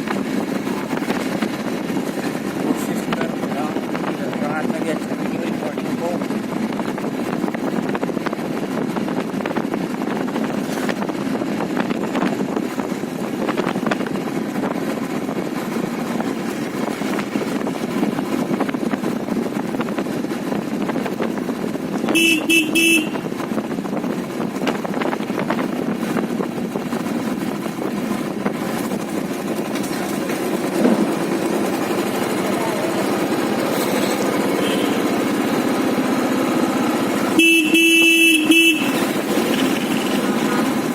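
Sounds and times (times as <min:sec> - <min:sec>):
motorcycle engine and road noise: 0:00.0 - 0:40.9
vehicle horn beeps: 0:22.1 - 0:23.3, 0:34.5 - 0:35.2, 0:37.3 - 0:40.1.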